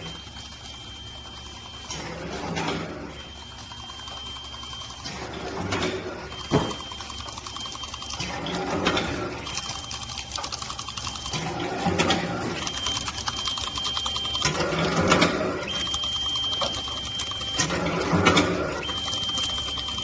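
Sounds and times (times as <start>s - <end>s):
high machine whine: 0.0s - 20.0s.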